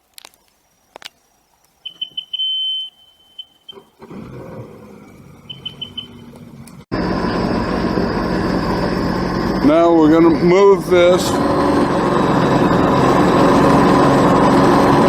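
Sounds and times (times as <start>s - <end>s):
high electronic beeps: 1.8s - 3.9s, 5.5s - 6.3s
jet ski engine running: 1.8s - 15.0s
louder engine running steadily: 3.7s - 15.0s.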